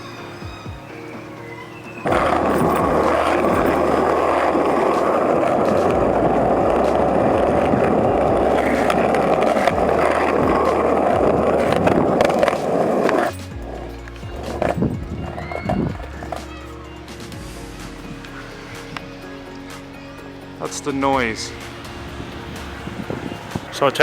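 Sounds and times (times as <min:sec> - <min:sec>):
skateboard wheels rolling on pavement: 0:00.0 - 0:24.0
skateboard clicks: 0:01.9 - 0:17.3.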